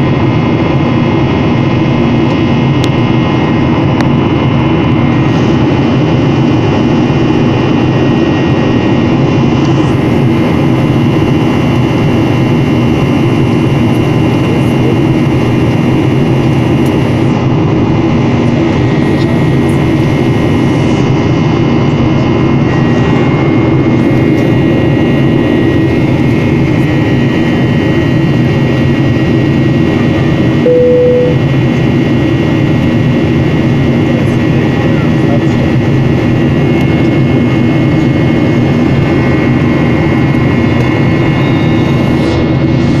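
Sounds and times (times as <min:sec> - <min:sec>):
jet engine cabin drone: 0:00.0 - 0:43.0
short tone: 0:30.6 - 0:31.6, 0:41.3 - 0:42.1
steady high tones: 0:30.7 - 0:31.5.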